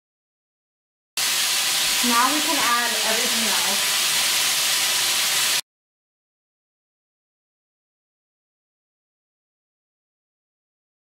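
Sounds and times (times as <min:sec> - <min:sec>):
chicken frying in oil: 0:01.2 - 0:05.6
person speaking: 0:02.0 - 0:03.9.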